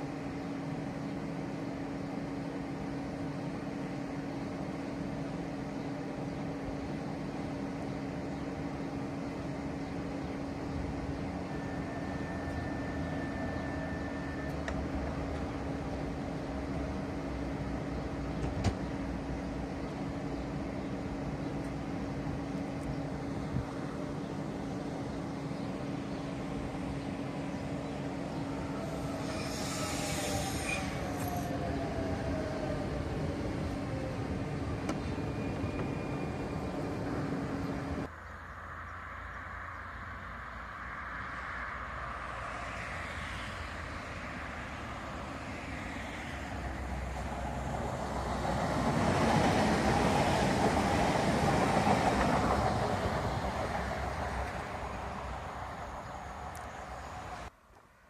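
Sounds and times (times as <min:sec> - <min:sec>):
train approaching: 0:00.0 - 0:57.6
train running hum: 0:00.0 - 0:57.6
train brake squeal: 0:11.5 - 0:14.7, 0:28.9 - 0:31.6, 0:35.2 - 0:36.7.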